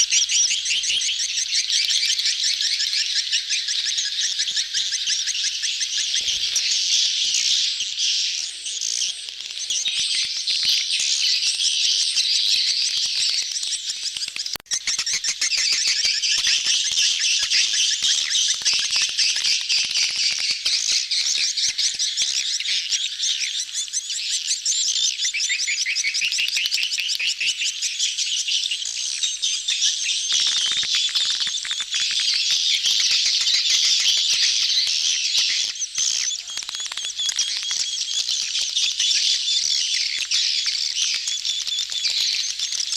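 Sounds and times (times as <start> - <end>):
swiftlets twittering: 30.2 - 42.9.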